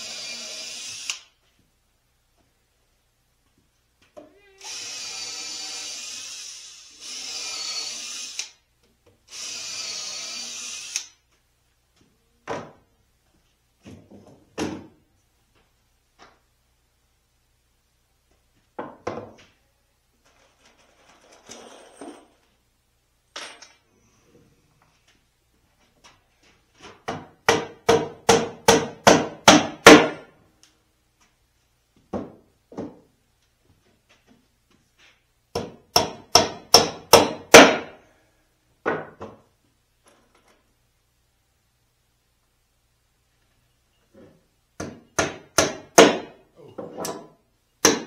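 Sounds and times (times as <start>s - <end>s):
hammer driving nails into wood: 27.0s - 30.3s, 35.5s - 38.0s, 44.8s - 46.4s, 47.0s - 48.0s.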